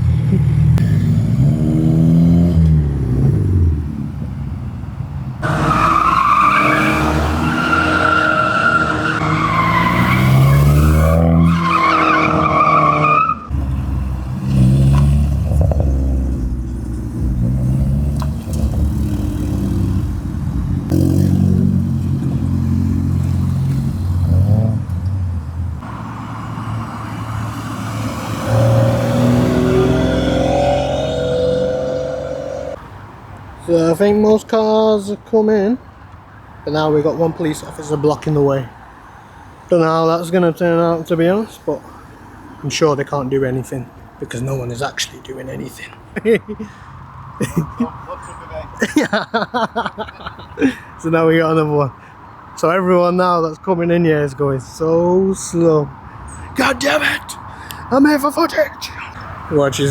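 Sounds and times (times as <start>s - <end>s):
car engines revving: 0.0s - 32.9s
tyres squealing: 5.4s - 13.5s, 28.3s - 32.8s.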